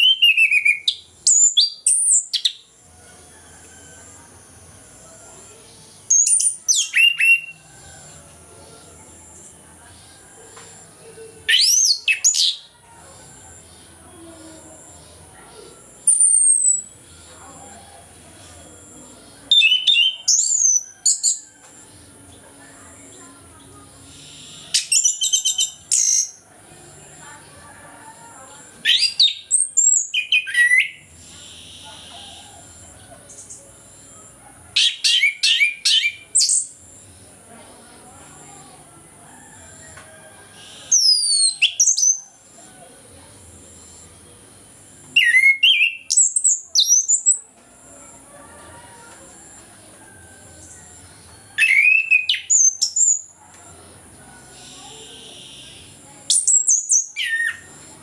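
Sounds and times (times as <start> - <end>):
thrush singing whistled notes: 45.1 - 47.1.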